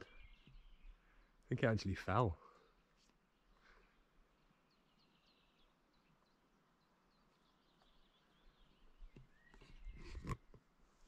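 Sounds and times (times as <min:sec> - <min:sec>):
small bird chirping: 0:00.0 - 0:01.4, 0:02.8 - 0:10.2.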